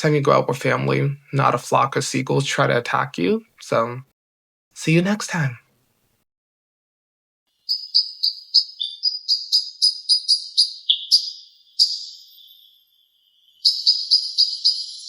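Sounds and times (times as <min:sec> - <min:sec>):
high-pitched chirping notes: 0:07.6 - 0:15.0.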